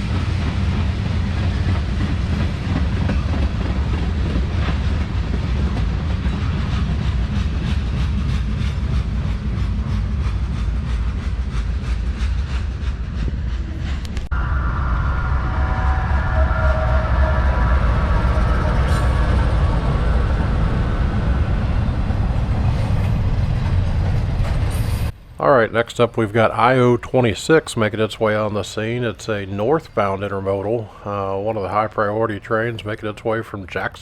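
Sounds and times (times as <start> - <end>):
train wheels clickety-clack: 0.0 - 14.3
freight train rumbling: 0.0 - 34.0
high steady ringing tones: 14.3 - 20.7.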